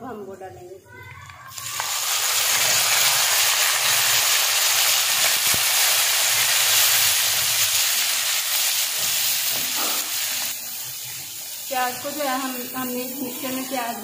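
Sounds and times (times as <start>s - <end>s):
onion paste sizzling in ghee: 0.0s - 14.0s.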